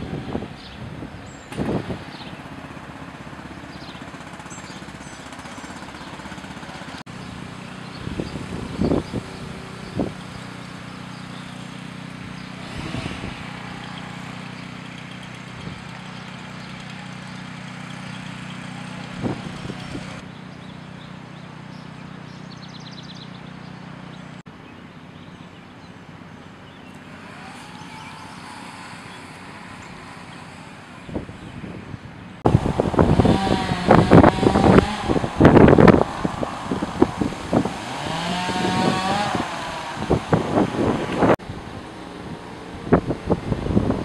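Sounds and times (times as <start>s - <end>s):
motor humming: 1.5s - 23.8s, 26.9s - 44.0s.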